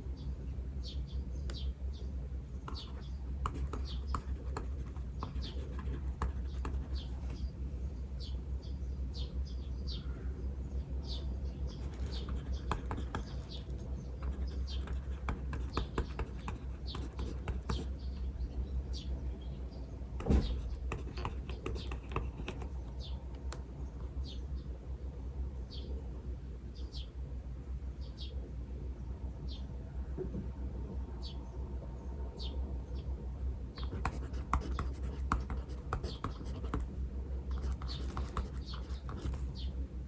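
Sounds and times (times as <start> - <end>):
small birds chirping: 0.0 - 26.0, 26.6 - 27.2, 28.0 - 28.4, 31.2 - 39.8
steady low hum: 0.0 - 40.0
pen writing on paper: 2.7 - 7.4, 11.7 - 18.0, 20.2 - 22.9, 33.8 - 39.6.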